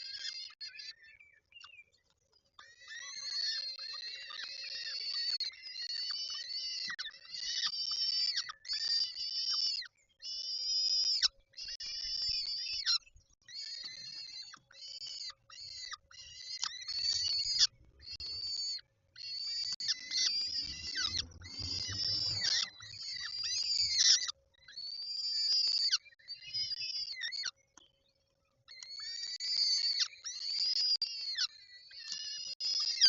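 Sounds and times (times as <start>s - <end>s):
falcon calling: 19.4s - 24.2s
low rumble: 19.8s - 24.0s.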